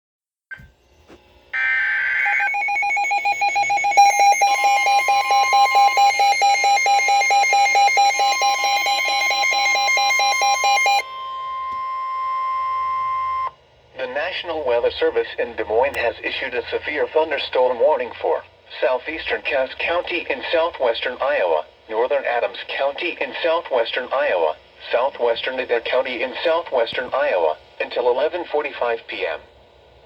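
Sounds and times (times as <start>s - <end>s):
fast-pulsing alarm: 1.5s - 13.6s
steady warning alarm tone: 1.5s - 13.6s
data tones burst: 1.6s - 13.5s.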